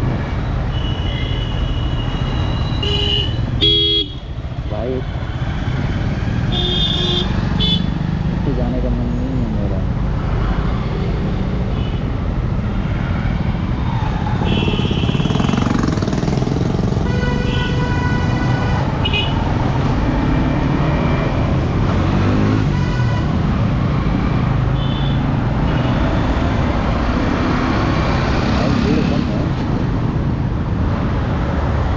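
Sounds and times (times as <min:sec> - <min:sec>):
vehicle horns honking: 0:00.7 - 0:04.2, 0:06.5 - 0:07.9, 0:14.4 - 0:15.7, 0:17.0 - 0:19.4, 0:22.4 - 0:23.4, 0:24.7 - 0:26.3
motorcycle engine: 0:13.0 - 0:22.8.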